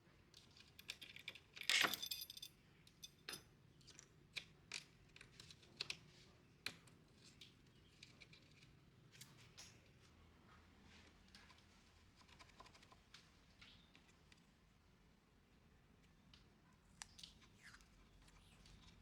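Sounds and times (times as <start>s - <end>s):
metal hardware clinking: 1.6s - 2.5s
metallic jangle: 1.7s - 3.2s.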